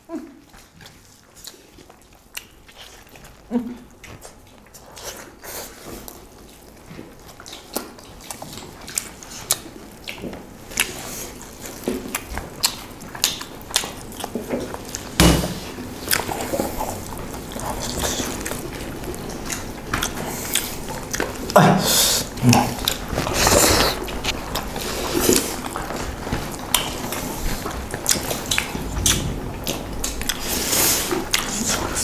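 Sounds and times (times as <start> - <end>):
people chewing food: 0.0 - 32.0
loud thump: 15.2 - 15.6.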